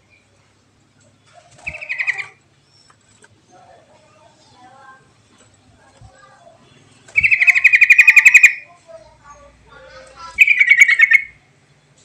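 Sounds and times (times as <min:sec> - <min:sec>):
soft bird chirps: 0:01.1 - 0:04.8, 0:06.4 - 0:09.6, 0:10.2 - 0:12.0
bird fast trills: 0:01.6 - 0:02.9, 0:07.1 - 0:08.7, 0:10.4 - 0:11.4.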